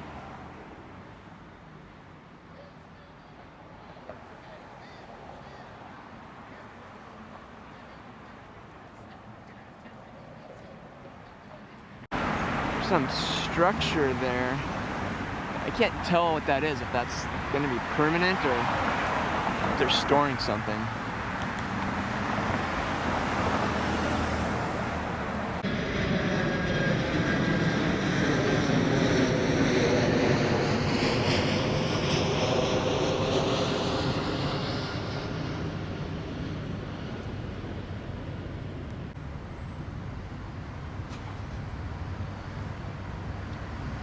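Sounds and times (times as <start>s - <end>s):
jet airliner passing overhead: 12.2s - 44.0s.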